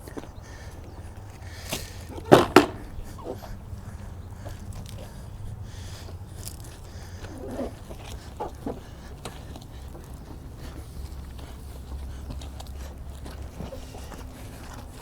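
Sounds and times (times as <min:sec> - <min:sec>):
sharp knocks: 0:02.2 - 0:02.9.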